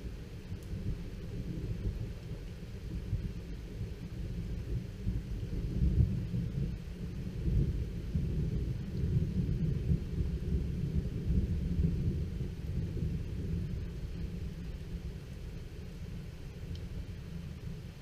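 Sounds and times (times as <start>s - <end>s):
thunder rumbling: 4.5s - 18.0s.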